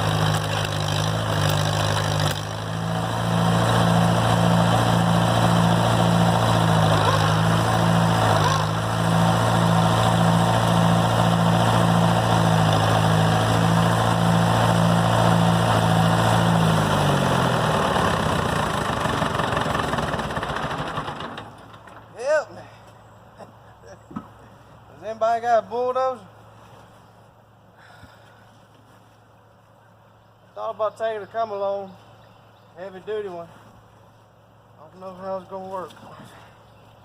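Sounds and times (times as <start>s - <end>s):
tractor engine running: 0.0s - 22.2s.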